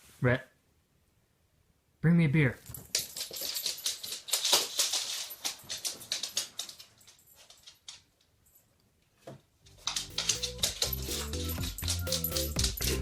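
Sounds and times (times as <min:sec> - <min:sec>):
dog claws scrabbling on hard floor: 0:02.7 - 0:08.1, 0:09.3 - 0:13.0
music: 0:09.7 - 0:13.0.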